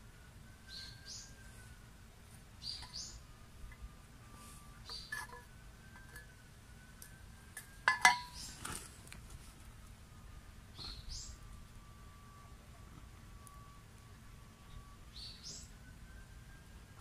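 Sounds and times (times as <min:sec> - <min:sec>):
birds chirping: 0:00.6 - 0:01.8, 0:02.5 - 0:06.4, 0:07.7 - 0:08.6, 0:10.6 - 0:16.2.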